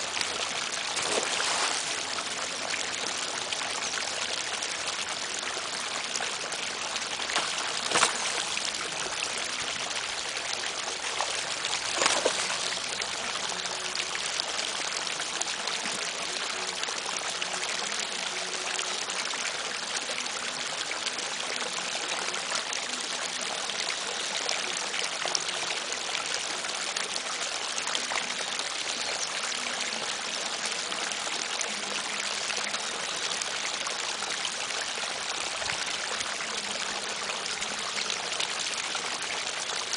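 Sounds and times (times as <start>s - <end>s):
running water rushing: 0.0s - 17.6s.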